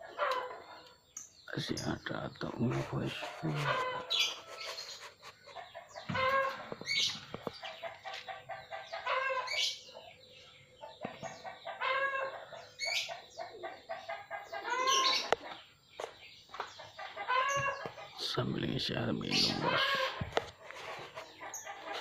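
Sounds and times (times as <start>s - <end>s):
short pitched bird calls: 14.6s - 15.3s.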